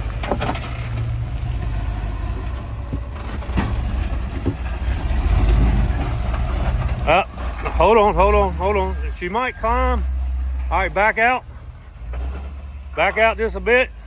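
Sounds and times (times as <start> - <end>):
vehicle knocking against rock: 0.0 - 9.0
truck engine crawling over rocks: 0.0 - 14.0.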